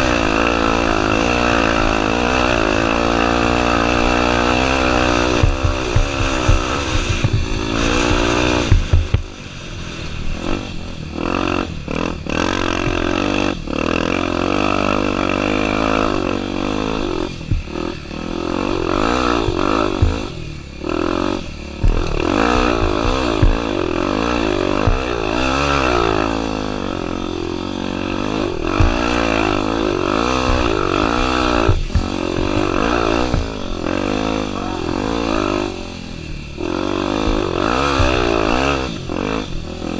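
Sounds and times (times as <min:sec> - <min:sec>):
motorcycle engine revving: 0:00.0 - 0:39.9
knocks and clatter: 0:04.5 - 0:09.4, 0:17.3 - 0:20.4, 0:21.8 - 0:26.0, 0:28.2 - 0:34.3, 0:37.1 - 0:39.4.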